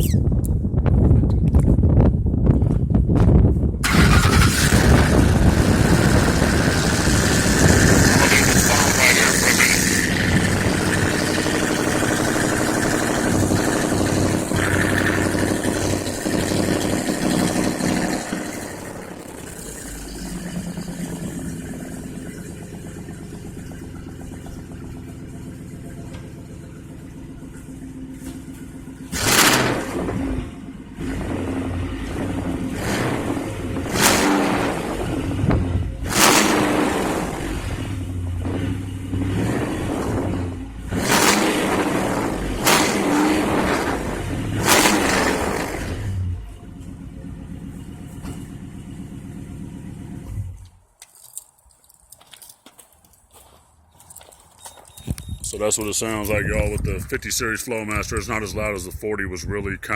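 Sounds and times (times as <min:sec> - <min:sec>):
engine idling: 0:02.5 - 0:50.8
loud engine burst: 0:03.8 - 0:25.2, 0:29.1 - 0:46.4.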